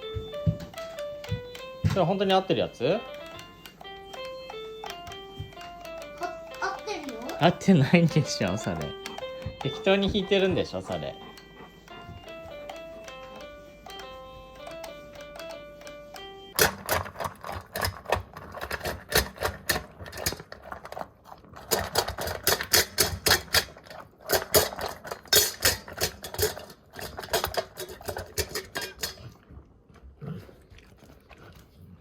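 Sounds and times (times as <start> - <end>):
electronic keyboard notes: 0.0 - 16.9
clatter of sharp clicks and knocks: 16.6 - 29.3.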